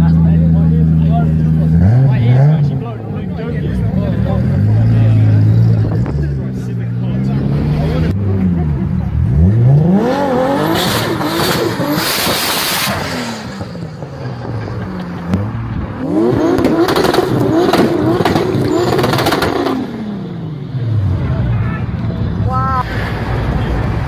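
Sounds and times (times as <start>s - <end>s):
car engine revving hard: 1.4s - 21.2s.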